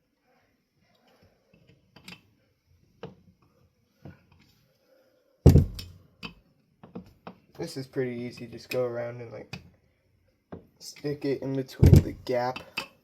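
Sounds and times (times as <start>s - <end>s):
heavy clunk: 5.5s - 5.9s, 11.8s - 12.3s.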